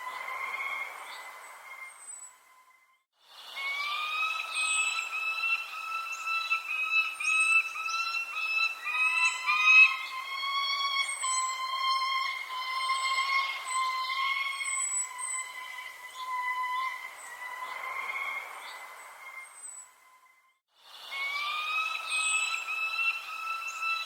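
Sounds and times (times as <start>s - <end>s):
steady whistling tone: 0.0s - 20.3s, 21.0s - 24.0s
small birds chirping: 1.0s - 17.8s.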